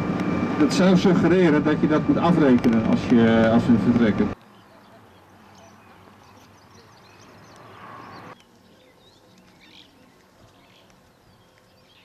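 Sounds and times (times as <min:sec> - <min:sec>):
small birds chirping: 0:03.4 - 0:12.0.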